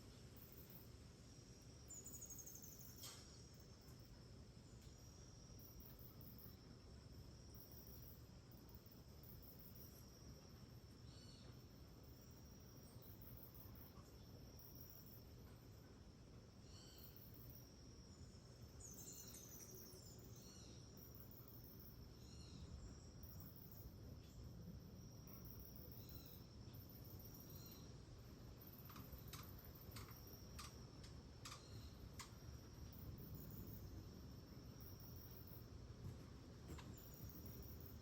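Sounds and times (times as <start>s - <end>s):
insects trilling: 0.2s - 38.0s
sharp ticks: 28.8s - 32.4s.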